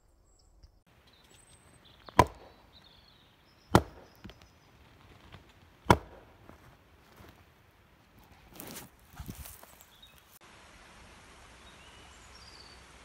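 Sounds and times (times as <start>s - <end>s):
stick knocking on tree trunk: 2.1s - 2.6s, 3.7s - 4.5s, 5.3s - 6.6s.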